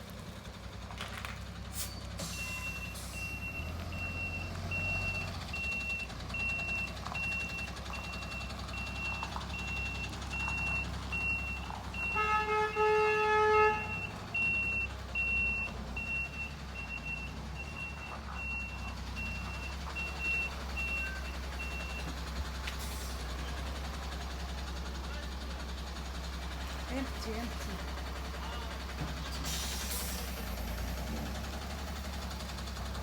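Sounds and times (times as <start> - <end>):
truck engine rumble: 0.0 - 33.0
truck reversing alarm beeping: 1.8 - 33.0
vehicle horn: 12.0 - 14.1.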